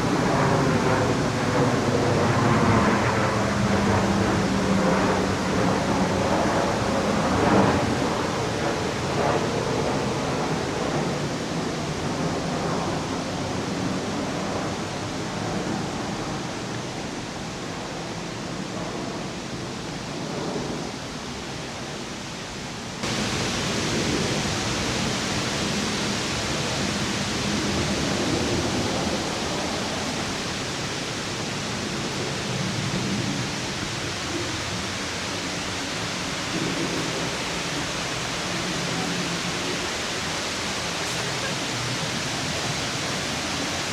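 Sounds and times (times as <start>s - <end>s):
waterfall rushing: 0.0s - 2.3s, 23.0s - 43.9s.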